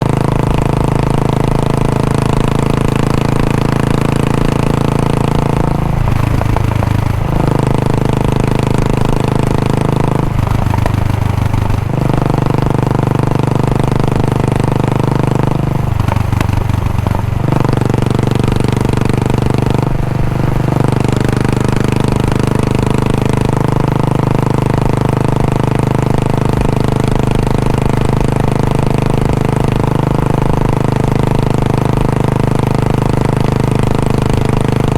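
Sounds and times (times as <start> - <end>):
engine throttle bursts: 0.0 - 34.9
motorcycle engine idling: 0.0 - 34.9.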